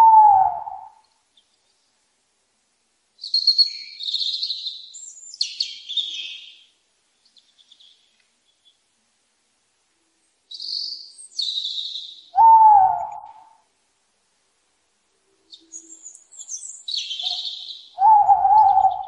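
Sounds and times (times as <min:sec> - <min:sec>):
low bird call bending down: 0:12.3 - 0:13.6.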